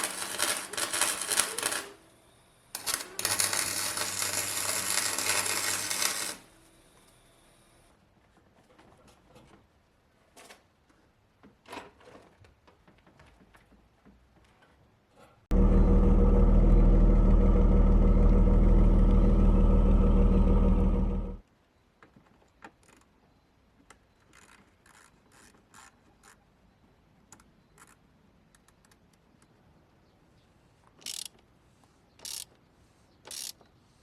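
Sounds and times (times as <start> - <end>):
engine cranking by starter motor: 15.5 - 21.4
small clicks: 30.9 - 31.5, 32.2 - 32.6, 33.2 - 33.6.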